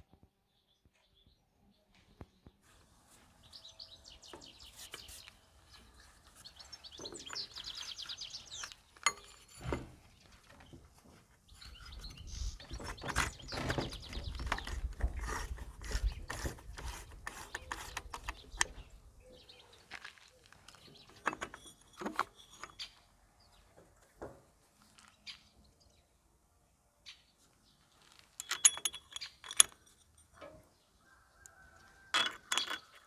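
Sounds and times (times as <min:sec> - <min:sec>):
rubber belt rubbing and scraping: 0:04.3 - 0:09.9, 0:11.6 - 0:18.8
small metal clicks and knocks: 0:07.0 - 0:09.8, 0:20.6 - 0:23.0, 0:28.1 - 0:30.8, 0:31.4 - 0:33.0.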